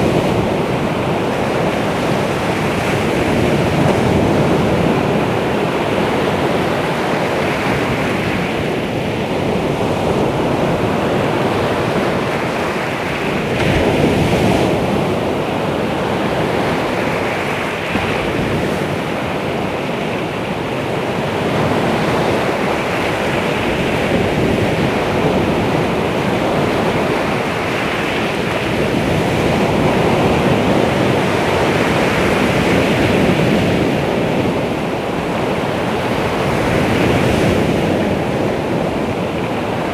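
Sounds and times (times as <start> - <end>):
surf washing on shore: 0.0 - 39.9.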